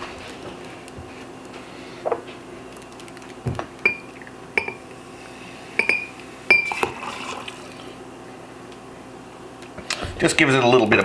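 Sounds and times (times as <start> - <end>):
liquid pouring: 6.7 - 8.0.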